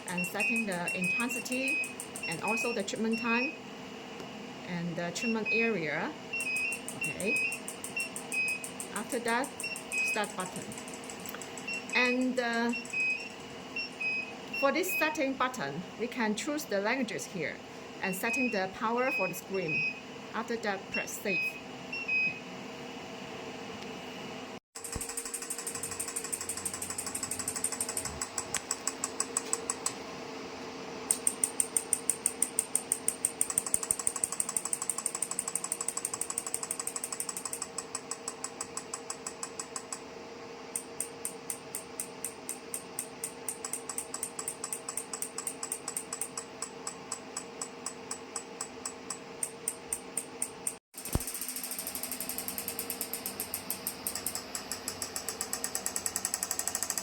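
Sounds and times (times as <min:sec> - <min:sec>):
machine hum: 0:06.2 - 0:14.5, 0:24.8 - 0:47.2
rapid clicking: 0:06.6 - 0:13.4, 0:24.8 - 0:30.0, 0:31.1 - 0:40.0, 0:40.8 - 0:57.0.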